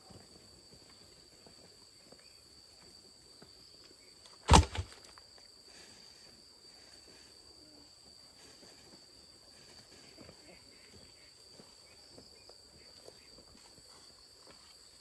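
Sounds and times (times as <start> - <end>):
sharp knock: 4.5 - 5.0.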